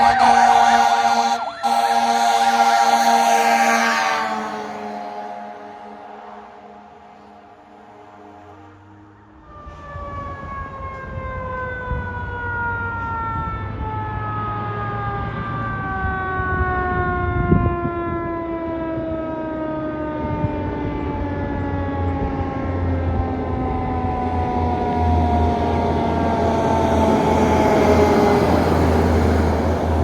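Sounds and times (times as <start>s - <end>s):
truck engine rumble: 0.0s - 11.0s, 19.6s - 30.0s.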